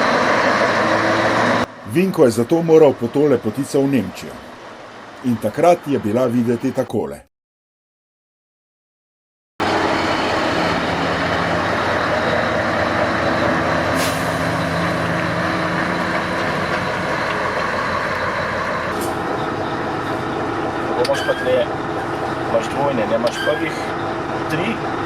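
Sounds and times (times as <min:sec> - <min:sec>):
diesel engine running: 0:00.0 - 0:06.8, 0:09.6 - 0:25.0.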